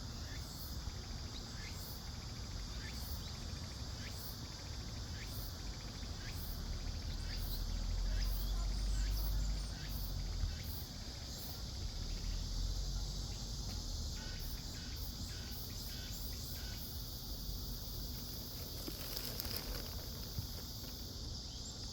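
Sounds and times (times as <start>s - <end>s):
cicadas droning: 0.0s - 21.9s.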